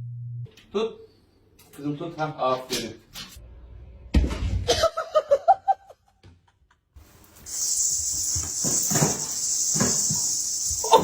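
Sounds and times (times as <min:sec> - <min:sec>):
steady high hiss: 0:07.0 - 0:11.0.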